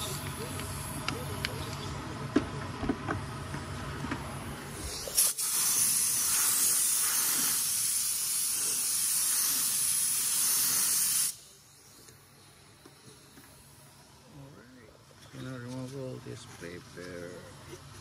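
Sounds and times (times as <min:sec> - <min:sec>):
pressurized spray hissing: 0:04.7 - 0:12.2.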